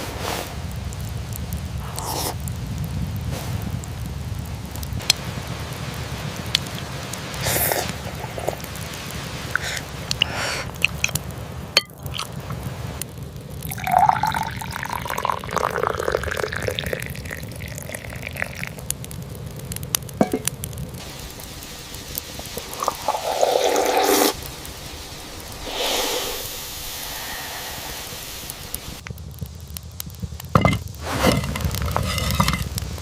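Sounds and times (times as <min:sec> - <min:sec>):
steady rain: 0:00.0 - 0:33.0
liquid pouring into a vessel: 0:13.7 - 0:18.8, 0:22.6 - 0:24.3.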